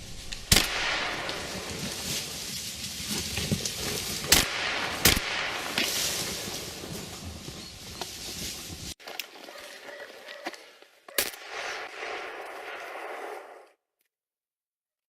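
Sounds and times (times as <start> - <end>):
gunshots: 0.5 - 2.0, 4.2 - 6.4, 11.2 - 13.6.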